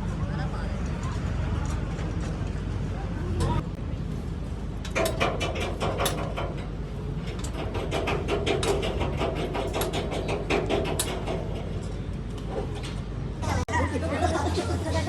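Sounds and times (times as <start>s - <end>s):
steady low hum: 0.0s - 15.0s
tool clicks and taps on metal: 4.8s - 13.0s.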